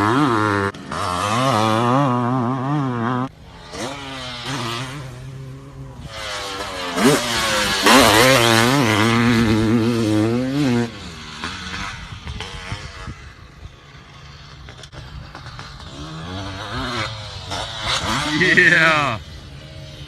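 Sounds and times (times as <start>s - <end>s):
motocross engine revving: 0.0s - 20.0s.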